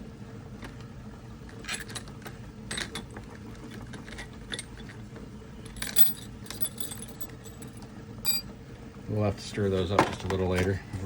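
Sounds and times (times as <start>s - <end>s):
small steel parts clinking: 5.6s - 8.5s.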